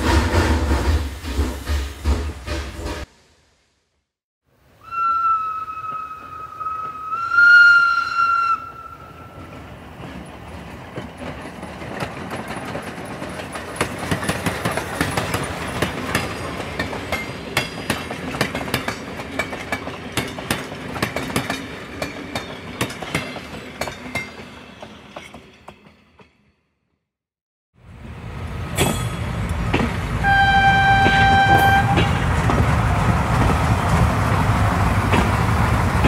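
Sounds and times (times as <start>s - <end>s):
train carriage rumbling: 0.0s - 3.1s, 5.7s - 26.3s, 27.9s - 36.0s
train horn: 4.8s - 9.4s, 30.2s - 32.2s
wheels clattering over rail joints: 9.4s - 26.0s.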